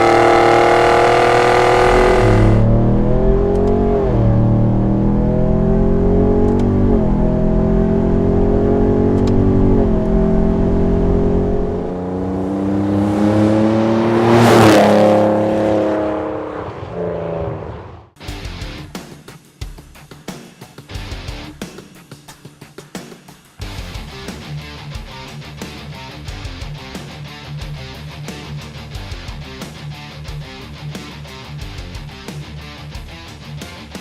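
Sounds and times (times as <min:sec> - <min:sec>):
truck engine accelerating: 0:00.0 - 0:18.2.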